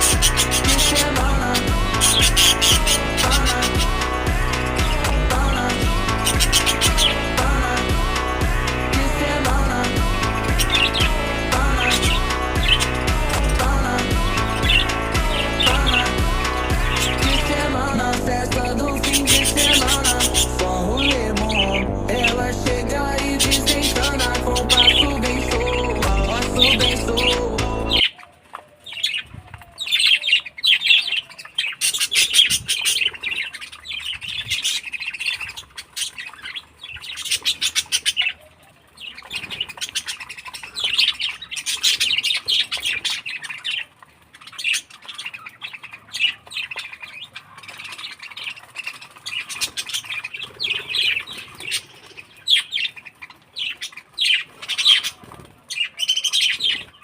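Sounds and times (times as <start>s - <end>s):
budgerigars chattering and warbling: 0.0s - 28.2s, 28.9s - 57.0s.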